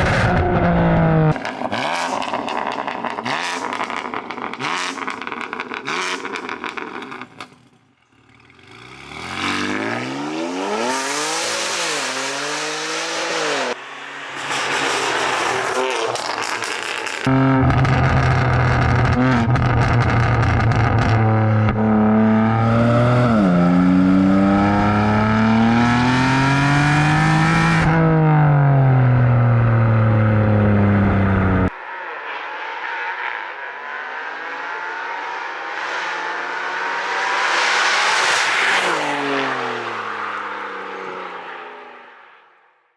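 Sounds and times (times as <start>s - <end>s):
car engine revving: 0.0s - 41.9s
car passing by: 31.8s - 42.4s.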